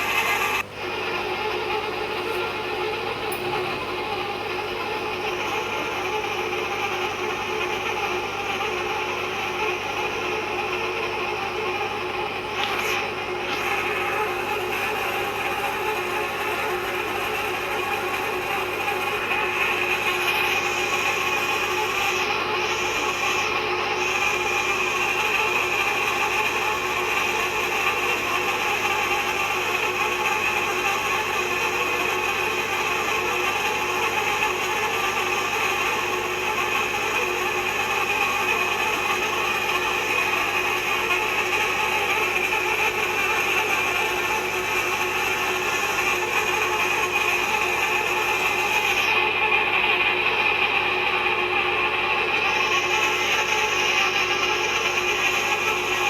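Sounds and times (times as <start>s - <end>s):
machine cutting into pipe: 0.0s - 9.0s, 11.7s - 30.4s.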